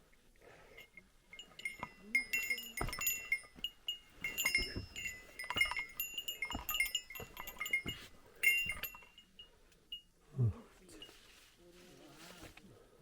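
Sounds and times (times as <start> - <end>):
small metal bell jingling: 0.7 - 10.1
dull footfalls: 1.6 - 9.0.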